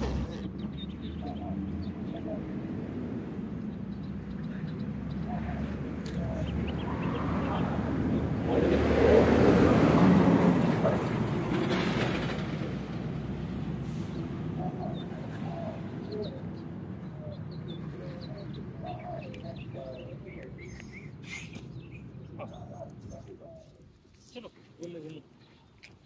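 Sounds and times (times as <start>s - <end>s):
birds chirping: 0.0s - 8.6s, 14.0s - 26.0s.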